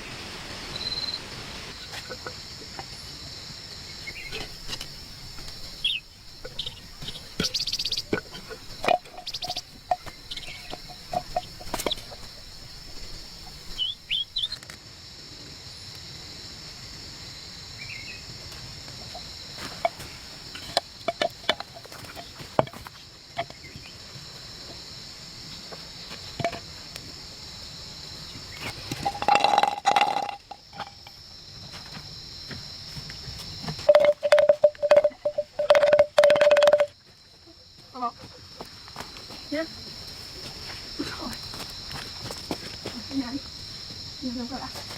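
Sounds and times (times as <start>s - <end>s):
high insect drone: 0.0s - 44.9s
bird calls: 4.0s - 14.6s.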